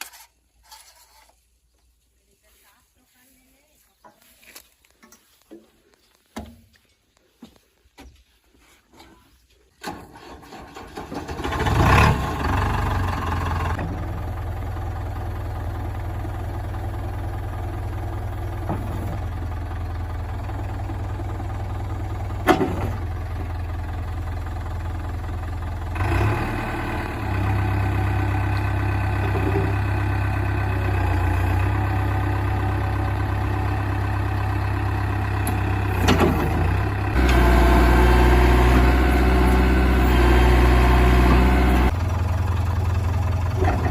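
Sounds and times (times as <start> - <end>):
heavy diesel engine running: 10.4 - 43.9.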